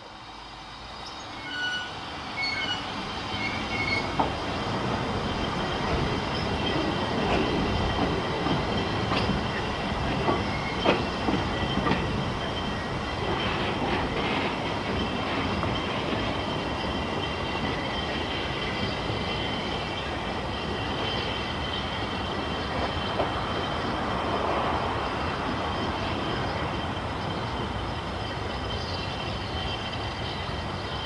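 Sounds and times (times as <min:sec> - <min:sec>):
train running on rails: 0:00.0 - 0:31.0
high thin wheel squeal: 0:01.0 - 0:04.2.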